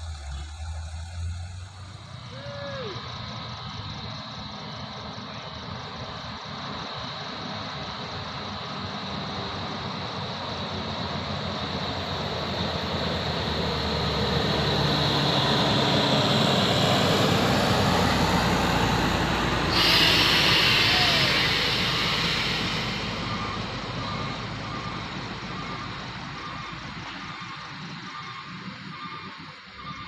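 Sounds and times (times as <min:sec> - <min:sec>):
truck engine approaching: 0:00.0 - 0:30.0.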